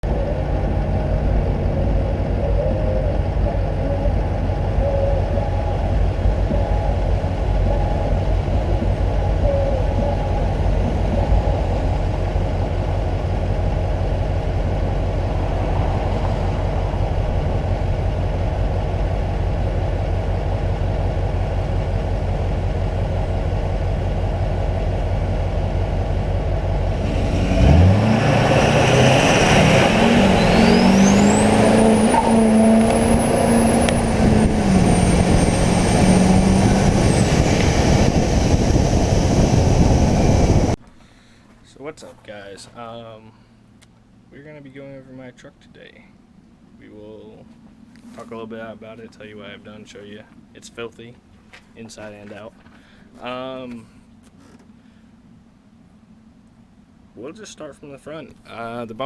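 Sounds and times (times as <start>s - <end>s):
diesel engine idling and revving: 0.0s - 40.9s.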